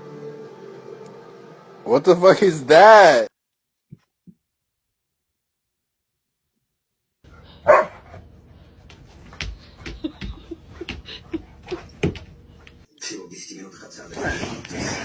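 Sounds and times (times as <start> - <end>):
dog barking: 7.6 - 8.2.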